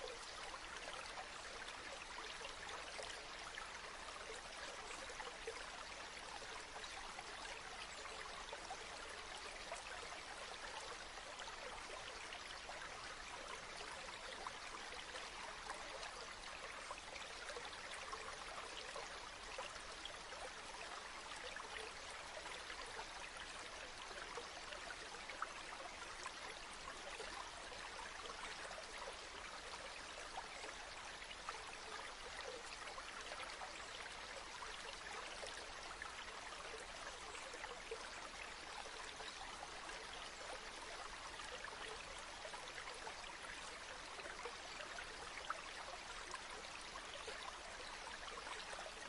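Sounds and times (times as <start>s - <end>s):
river water babbling: 0.0s - 49.0s.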